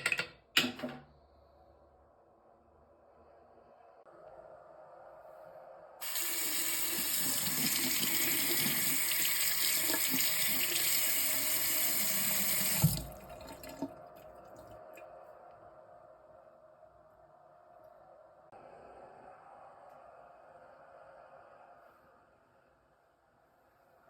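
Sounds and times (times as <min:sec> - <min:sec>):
tap water running into sink: 0:06.0 - 0:14.0.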